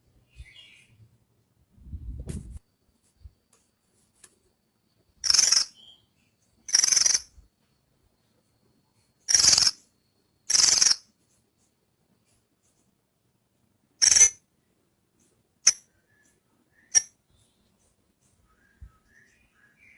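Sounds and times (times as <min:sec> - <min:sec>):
bird calling in rasping bursts: 0:05.2 - 0:06.0, 0:06.7 - 0:07.3, 0:09.3 - 0:09.8, 0:10.5 - 0:11.0.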